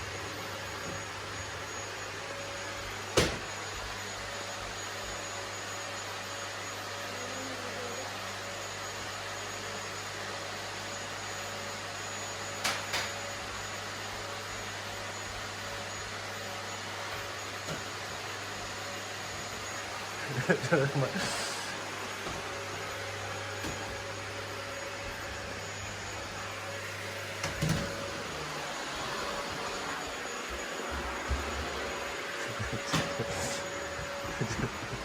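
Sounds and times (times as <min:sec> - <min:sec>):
vacuum cleaner running: 0:00.0 - 0:35.0.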